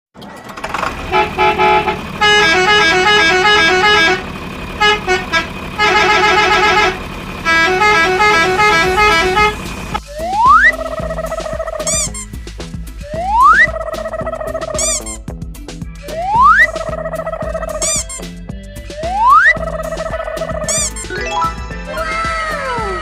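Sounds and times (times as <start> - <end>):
musical vehicle horn tune: 0.6 - 10.8, 11.8 - 12.4, 14.8 - 15.3, 17.7 - 18.4, 20.7 - 22.1
rising pitch glide: 20.9 - 23.0.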